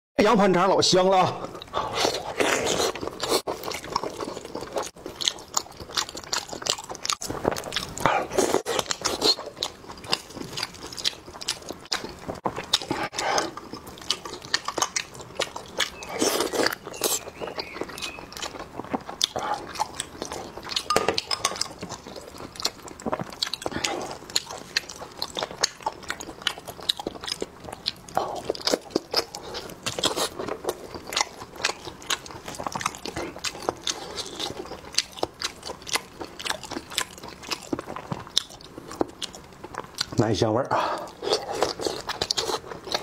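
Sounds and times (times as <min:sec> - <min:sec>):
biting and chewing: 0:01.5 - 0:40.2, 0:40.9 - 0:43.0.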